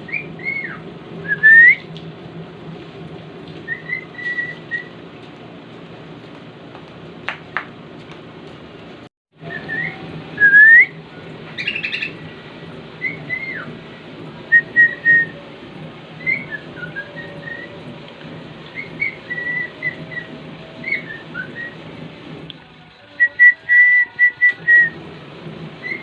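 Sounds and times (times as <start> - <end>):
cockatiel whistling: 0.0 - 1.9, 3.7 - 4.9, 9.4 - 12.2, 13.0 - 13.8, 14.5 - 15.4, 16.2 - 17.8, 18.7 - 21.8, 23.2 - 25.0, 25.8 - 26.0
harsh bird chirp: 11.6 - 12.2.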